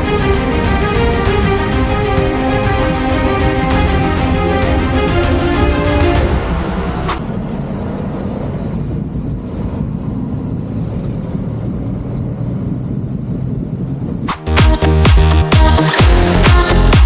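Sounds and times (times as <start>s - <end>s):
music track: 0.0s - 7.4s, 14.3s - 17.0s.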